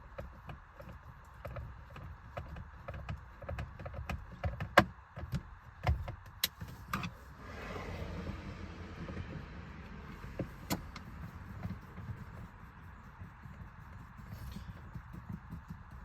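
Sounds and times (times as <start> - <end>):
clicks and knocks on plastic trim: 0.1 - 7.1
whirring hiss: 7.2 - 14.8.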